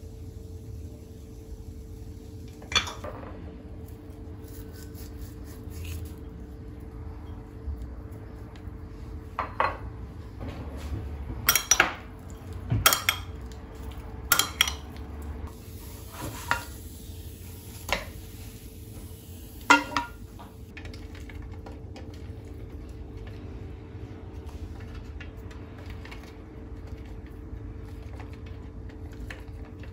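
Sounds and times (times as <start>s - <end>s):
dishes and cutlery clinking: 11.4s - 12.1s, 12.7s - 13.4s, 14.3s - 15.0s.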